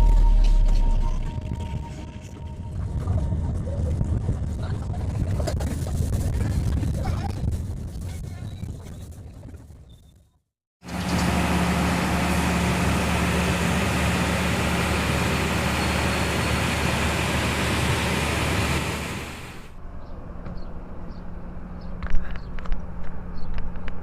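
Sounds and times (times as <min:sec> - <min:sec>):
passenger train rumbling: 0:10.9 - 0:19.7.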